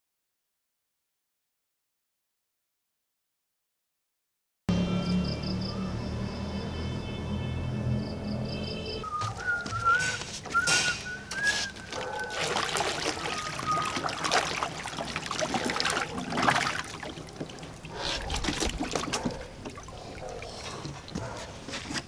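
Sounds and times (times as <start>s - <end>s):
thin wavering whistle tone: 8.5s - 12.4s, 13.2s - 14.4s
fountain water splashing: 11.8s - 18.0s.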